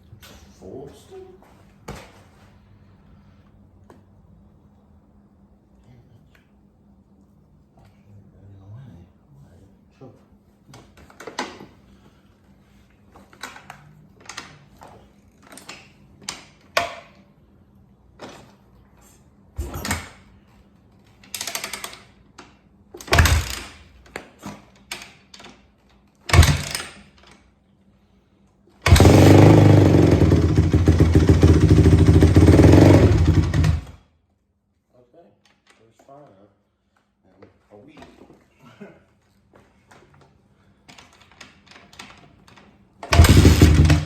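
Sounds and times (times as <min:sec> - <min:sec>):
motorcycle kick start: 0:23.0 - 0:23.8, 0:26.3 - 0:27.2, 0:28.8 - 0:34.0, 0:41.3 - 0:44.0
engine clicks and knocks: 0:23.1 - 0:23.7, 0:26.3 - 0:26.8, 0:28.9 - 0:33.9, 0:43.1 - 0:44.0
motorcycle engine running loud: 0:28.9 - 0:33.9, 0:43.1 - 0:44.0.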